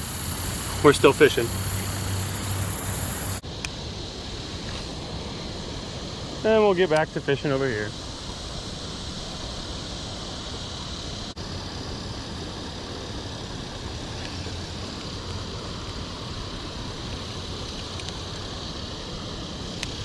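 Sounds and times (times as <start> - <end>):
creek water rushing: 0.0 - 3.4.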